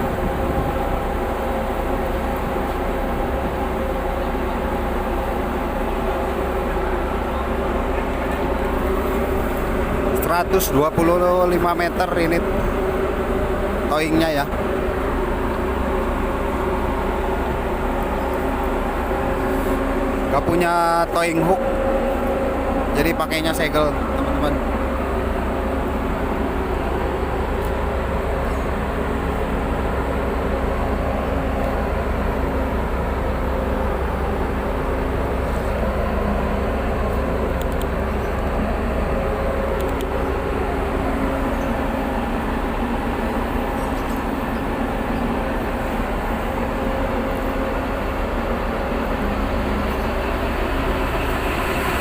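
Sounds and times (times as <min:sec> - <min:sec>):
diesel engines droning: 0:00.0 - 0:52.0.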